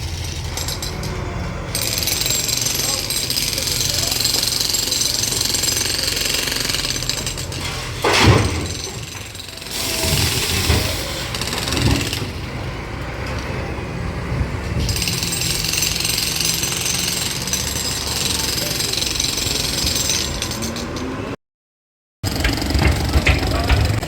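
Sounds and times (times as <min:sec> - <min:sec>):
heavy machinery humming: 0:00.0 - 0:21.3
loud crash: 0:07.6 - 0:12.4.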